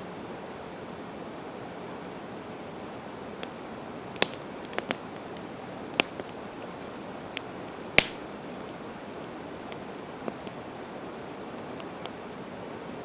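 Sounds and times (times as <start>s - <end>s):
campfire crackling and popping: 3.2s - 12.8s.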